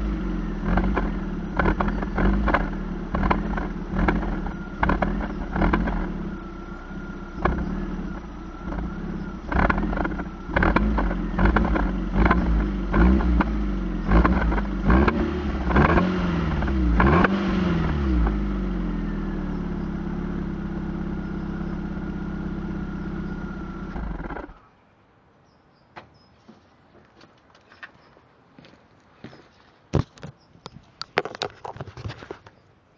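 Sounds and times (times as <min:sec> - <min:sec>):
car engine throttle blips: 0:00.0 - 0:24.6.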